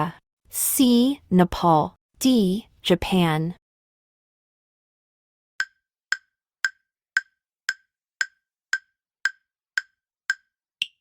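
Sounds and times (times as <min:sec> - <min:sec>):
timer ticking: 0:05.6 - 0:11.0.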